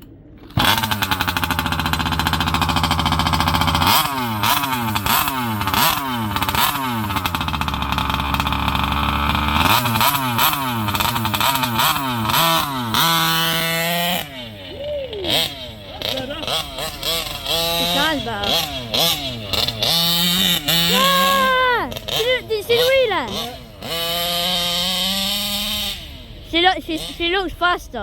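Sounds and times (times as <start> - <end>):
two-stroke engine revving: 0.4 - 28.0.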